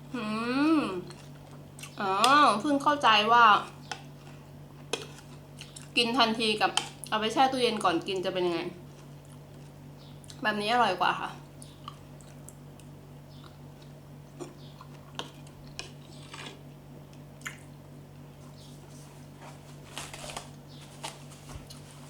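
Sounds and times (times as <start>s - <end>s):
steady low hum: 0.0s - 22.0s
person chewing food: 3.8s - 6.0s, 8.8s - 10.4s, 11.6s - 17.8s, 21.6s - 22.0s.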